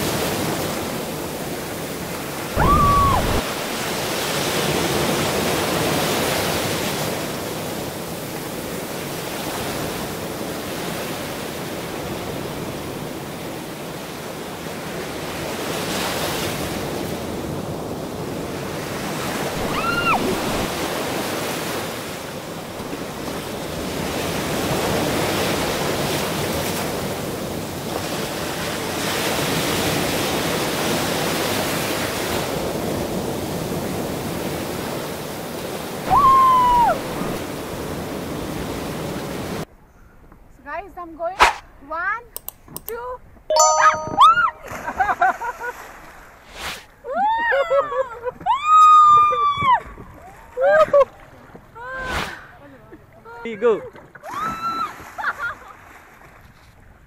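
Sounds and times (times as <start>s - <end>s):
rushing river water: 0.0s - 39.7s
short high rising tone: 43.5s - 44.7s.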